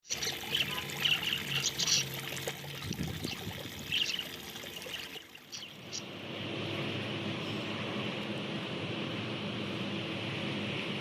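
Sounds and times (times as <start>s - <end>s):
water trickling and splashing: 0.0s - 6.0s.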